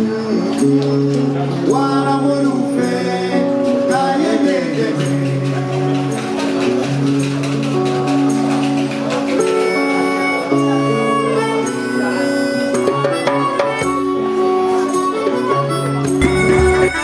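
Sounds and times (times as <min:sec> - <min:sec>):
band accompaniment: 0:00.0 - 0:17.0
harmonica melody: 0:05.6 - 0:17.0.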